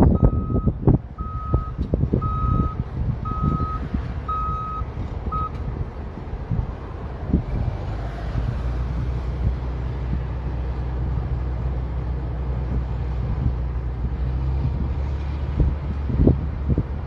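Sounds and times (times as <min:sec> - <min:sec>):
heavy equipment engine rumble: 0:00.0 - 0:17.0
reversing alarm beeping: 0:00.2 - 0:05.6.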